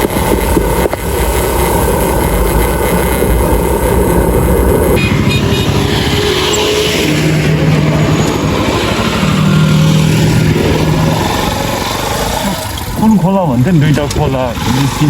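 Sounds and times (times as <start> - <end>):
wind rumble on microphone: 0.0 - 11.9
motorcycle engine running: 0.0 - 15.0.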